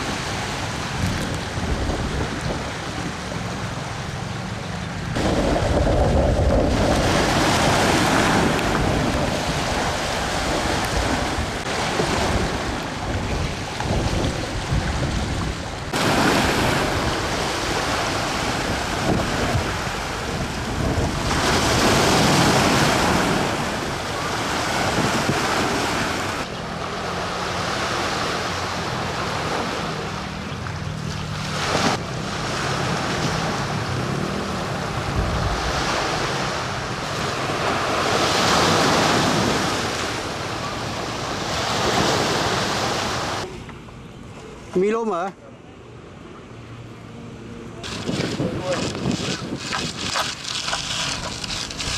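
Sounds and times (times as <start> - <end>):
waves surging and breaking: 0.0 - 51.9
wind buffeting microphone: 0.8 - 3.5, 4.9 - 26.4, 33.2 - 40.2, 47.8 - 51.9.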